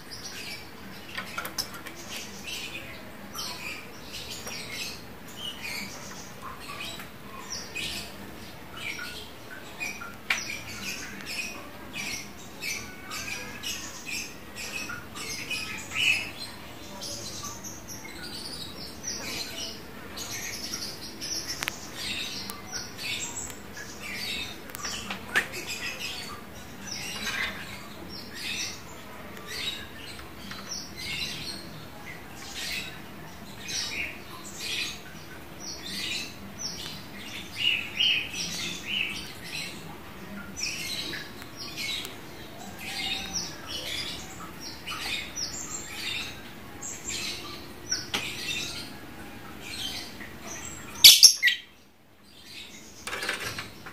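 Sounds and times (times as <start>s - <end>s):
lovebird chattering: 51.0s - 51.6s.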